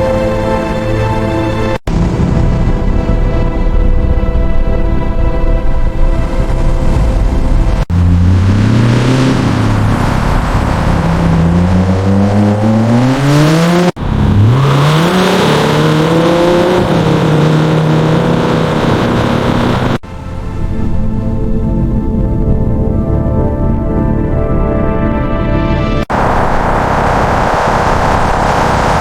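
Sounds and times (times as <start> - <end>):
car engine revving: 7.2 - 20.0, 26.1 - 29.0.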